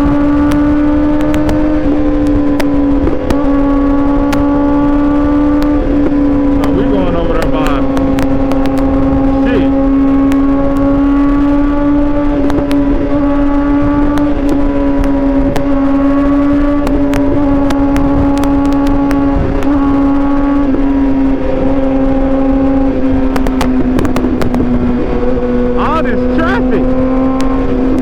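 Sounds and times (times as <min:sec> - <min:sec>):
motorcycle engine at high rpm: 0:00.0 - 0:28.0
rushing wind noise: 0:00.0 - 0:28.0
clicks and buffets on microphone: 0:00.4 - 0:03.5, 0:05.6 - 0:09.5, 0:12.3 - 0:12.9, 0:13.5 - 0:20.8, 0:23.2 - 0:25.0.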